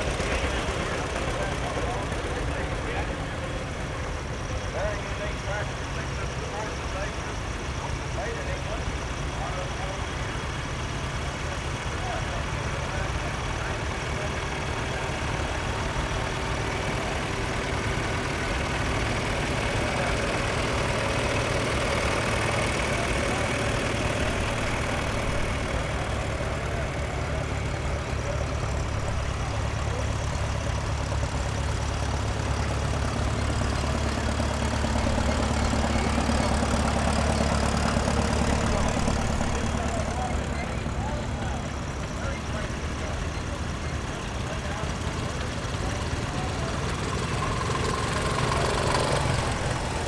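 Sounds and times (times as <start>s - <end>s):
tractor engines running: 0.0s - 50.0s.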